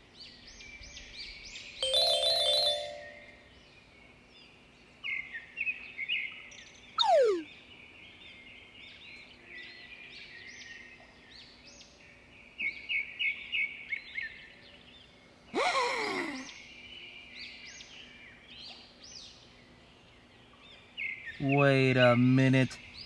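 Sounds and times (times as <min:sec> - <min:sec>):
burst with falling sweeps: 0:07.0 - 0:07.5
loud falling whistle: 0:07.0 - 0:07.5
birds chirping: 0:07.0 - 0:07.8.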